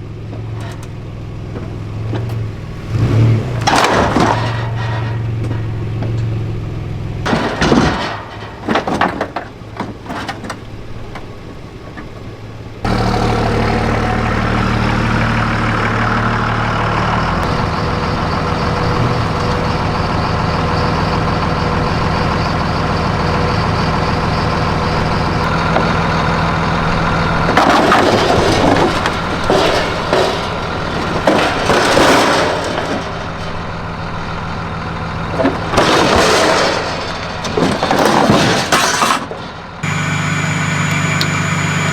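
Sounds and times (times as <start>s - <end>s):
truck engine idling: 0.0s - 41.9s
clattering knocks and bangs: 0.2s - 39.8s
scattered knocks: 7.2s - 12.2s, 17.4s - 33.9s.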